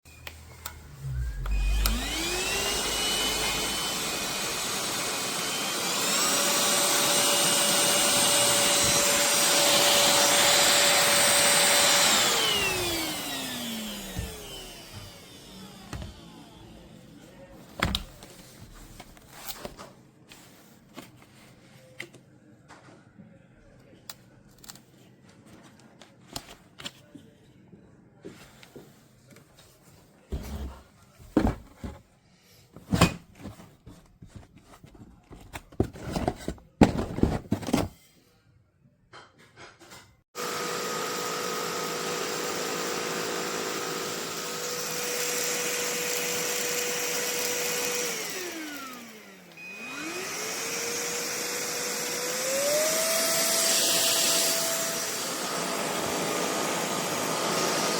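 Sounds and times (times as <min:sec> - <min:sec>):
vacuum motor whine: 0:00.1 - 0:18.1, 0:40.4 - 0:57.9.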